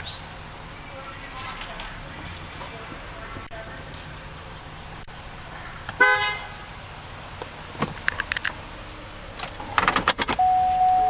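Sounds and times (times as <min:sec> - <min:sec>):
vehicle horn toot: 0:06.0 - 0:06.6.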